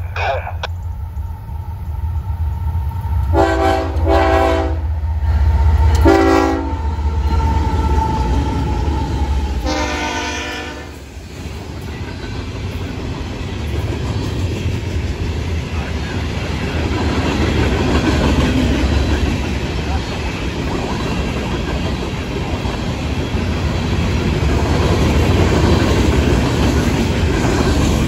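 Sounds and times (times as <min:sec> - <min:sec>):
diesel engines rumbling: 0:00.0 - 0:00.8
train horn blasts: 0:03.3 - 0:04.9, 0:06.0 - 0:06.8, 0:09.6 - 0:11.0.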